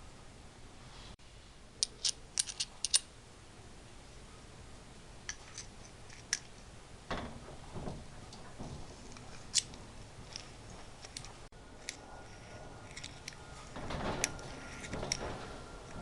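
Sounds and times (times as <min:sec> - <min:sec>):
rustling handling noise: 0:05.3 - 0:16.0
metal tools clinking: 0:08.6 - 0:16.0.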